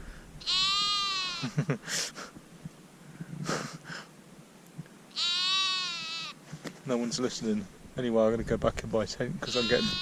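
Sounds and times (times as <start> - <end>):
sheep bleating: 0.4 - 1.5, 5.1 - 6.4, 9.4 - 10.0.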